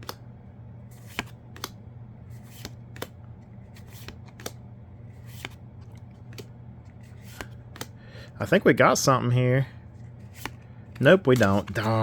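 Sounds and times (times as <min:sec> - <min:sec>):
steady low hum: 0:00.0 - 0:12.0
trading cards clicking: 0:01.0 - 0:01.8, 0:03.9 - 0:04.6, 0:07.2 - 0:08.0, 0:10.4 - 0:12.0.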